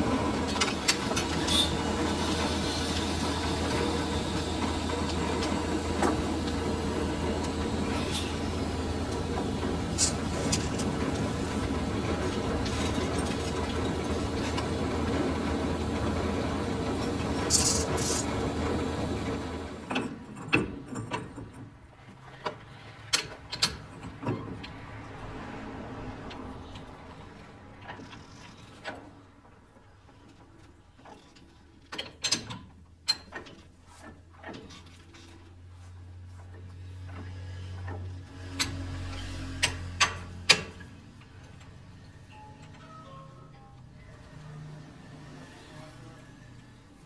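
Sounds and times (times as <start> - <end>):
lathe running: 0.0 - 19.9.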